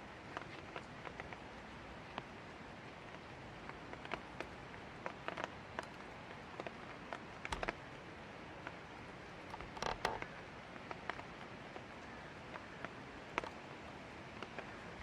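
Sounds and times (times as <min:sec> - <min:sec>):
light rain hiss: 0:00.0 - 0:15.0
raindrops tapping on hard surface: 0:03.0 - 0:11.9, 0:12.5 - 0:13.8.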